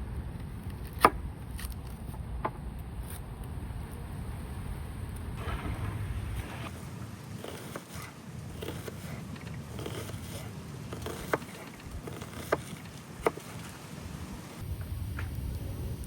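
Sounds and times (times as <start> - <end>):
steady low rumble: 2.2 - 8.6, 11.7 - 16.0
campfire crackling: 2.7 - 16.0
fire popping: 2.7 - 16.0.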